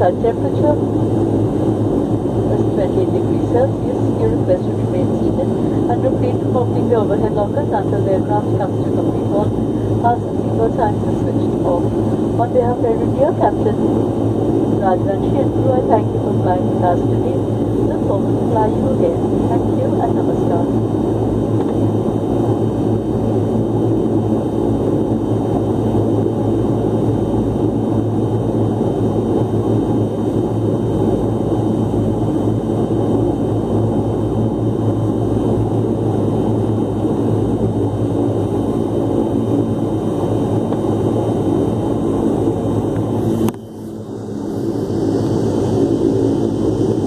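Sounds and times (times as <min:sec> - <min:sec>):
airliner engines droning: 0:00.0 - 0:47.0.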